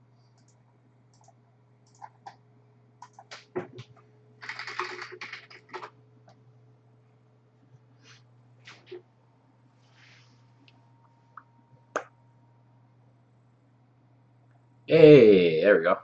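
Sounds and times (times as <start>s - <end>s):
low steady hum: 0.0s - 16.0s
keyboard typing: 0.4s - 2.4s, 3.0s - 6.0s.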